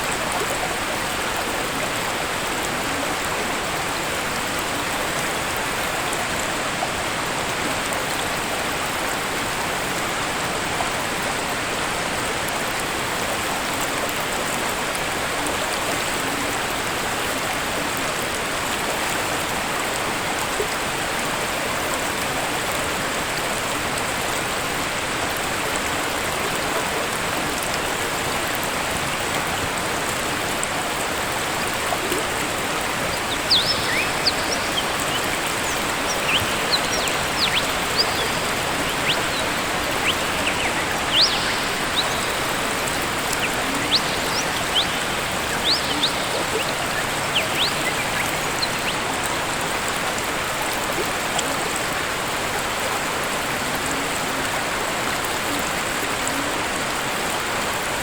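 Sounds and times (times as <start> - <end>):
waterfall rushing: 0.0 - 58.0
bird chirping: 32.7 - 49.1.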